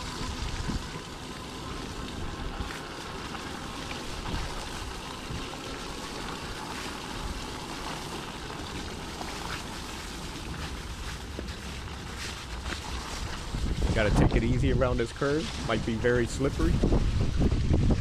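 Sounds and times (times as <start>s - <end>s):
wind buffeting microphone: 0.0s - 1.0s, 13.0s - 18.0s
tyres rolling through slush: 0.0s - 17.5s.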